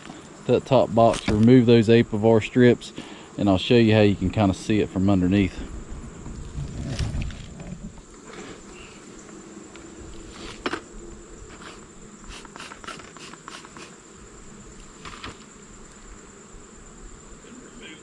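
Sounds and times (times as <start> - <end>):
high insect trill: 0.0 - 18.0
honeybees humming: 0.0 - 18.0.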